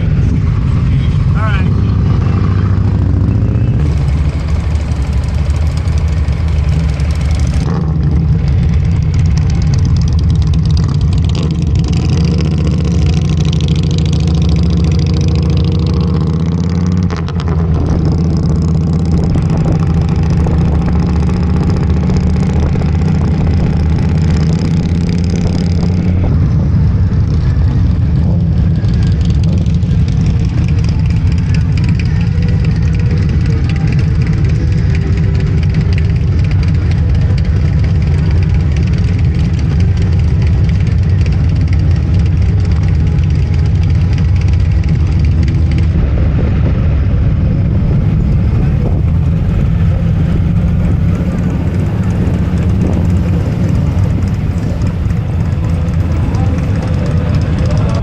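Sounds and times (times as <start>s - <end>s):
motorcycle engine running: 0.0s - 58.0s
wind rush: 17.5s - 30.9s, 45.6s - 58.0s.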